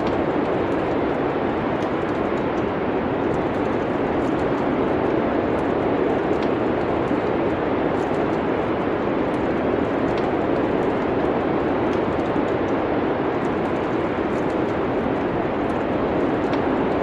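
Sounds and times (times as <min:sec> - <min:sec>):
faint wood fire crackles: 0:00.0 - 0:17.0
wind of a snowstorm: 0:00.0 - 0:17.0.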